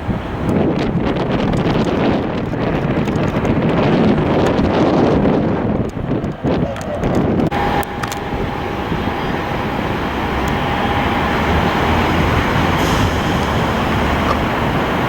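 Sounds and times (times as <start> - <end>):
jet engines roaring: 0.0 - 15.0
faint whine: 7.5 - 15.0.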